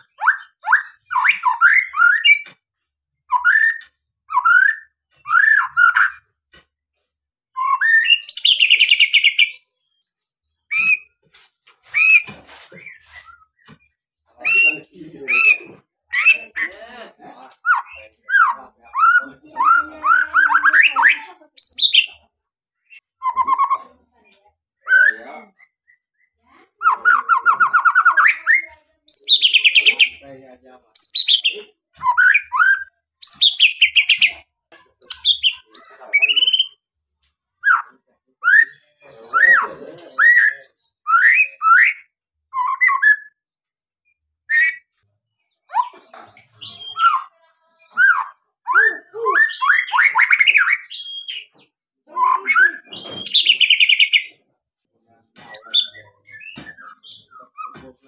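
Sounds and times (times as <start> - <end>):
bird singing whistles and trills: 3.3 - 6.2, 7.6 - 9.6, 40.2 - 43.4, 45.7 - 47.3.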